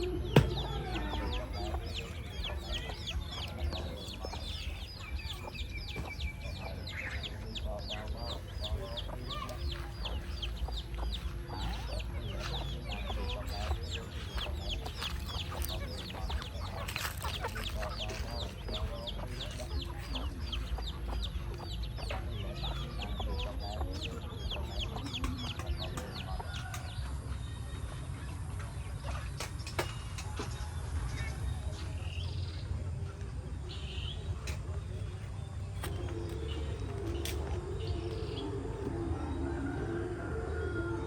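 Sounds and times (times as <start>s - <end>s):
chicks chirping: 0.0s - 30.3s
chickens clucking: 0.0s - 33.6s, 34.2s - 41.0s.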